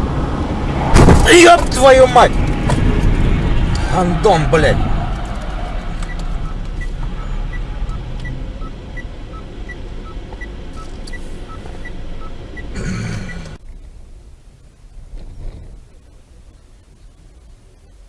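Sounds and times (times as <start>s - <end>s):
car rumble from inside cabin: 0.0s - 18.0s
two-tone electronic beep: 6.1s - 10.9s.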